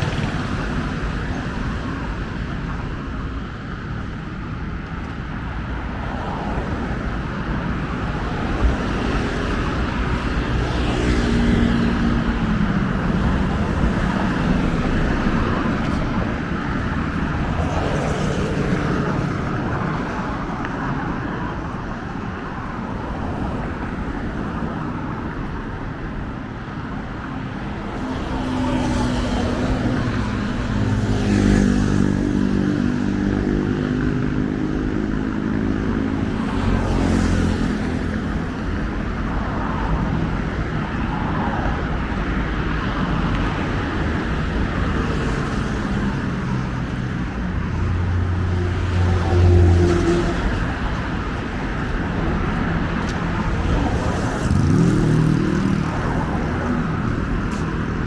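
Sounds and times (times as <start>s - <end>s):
cars driving past: 27.4s - 58.0s
motorcycles driving past: 45.1s - 57.8s.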